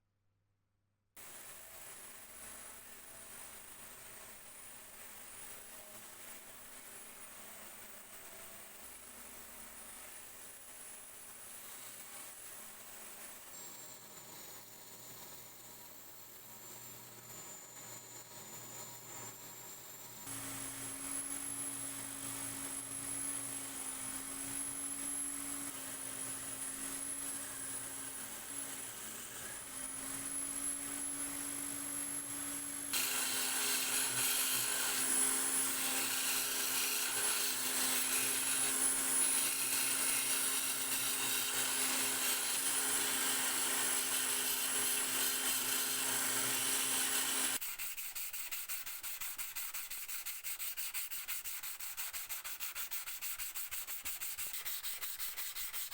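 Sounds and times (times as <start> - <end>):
electric power tool whining: 17.2 - 47.6.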